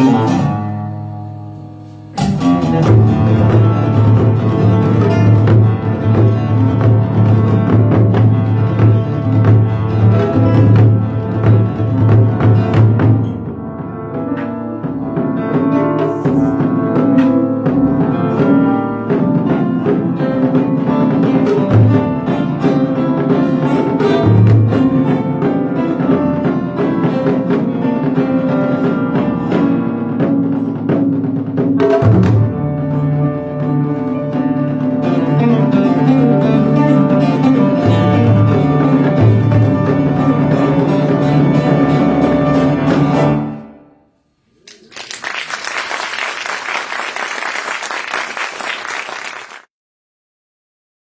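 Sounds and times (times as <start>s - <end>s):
taiko drum strikes: 0.0s - 33.2s, 36.0s - 43.4s
plucked acoustic guitar: 0.0s - 43.8s
piano notes: 0.0s - 44.6s
audience applauding: 44.6s - 49.7s.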